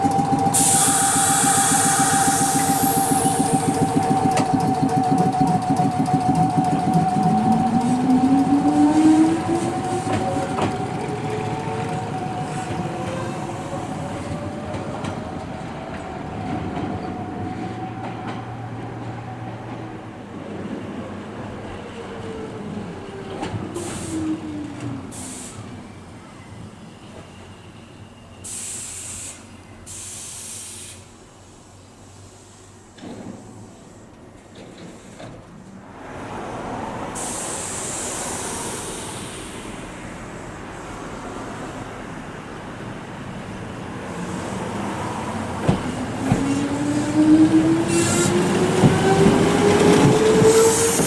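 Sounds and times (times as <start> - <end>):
electric train motor whine: 0.0 - 12.2
air brake hisses: 0.5 - 4.2, 23.8 - 24.4, 25.1 - 25.8, 28.4 - 31.1, 37.1 - 40.6.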